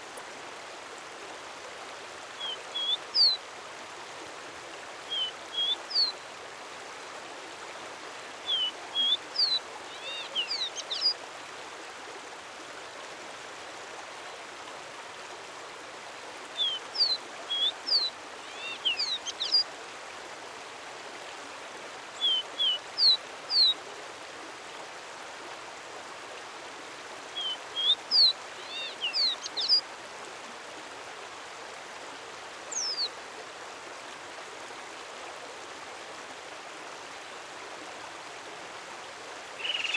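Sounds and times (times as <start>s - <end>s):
running water: 0.0s - 39.9s
songbird singing: 2.4s - 3.4s, 5.1s - 6.2s, 8.4s - 11.2s, 16.6s - 19.6s, 22.2s - 23.7s, 27.4s - 29.8s, 32.7s - 33.1s, 39.6s - 39.9s.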